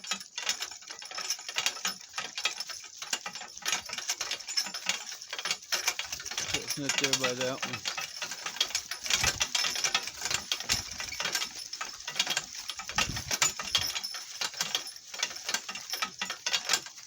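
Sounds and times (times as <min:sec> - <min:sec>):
cart rattling over rough ground: 0:00.0 - 0:17.0.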